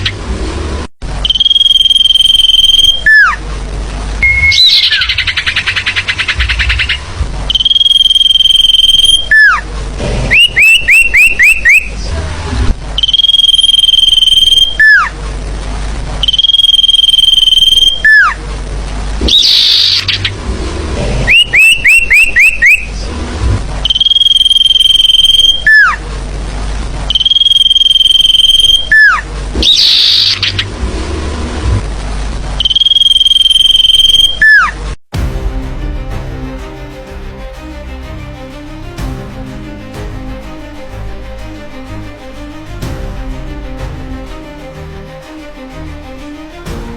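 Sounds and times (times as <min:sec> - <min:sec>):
recorded bird calls: 0:04.2 - 0:07.9, 0:10.3 - 0:12.0, 0:19.3 - 0:20.2, 0:21.3 - 0:22.9, 0:28.8 - 0:30.6.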